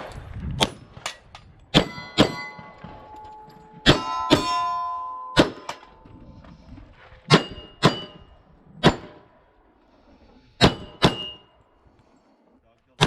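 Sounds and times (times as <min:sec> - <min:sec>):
steel targets ringing: 0:01.7 - 0:06.1, 0:07.3 - 0:09.2, 0:10.6 - 0:11.6
pistol shots: 0:05.4 - 0:05.8, 0:10.6 - 0:11.4.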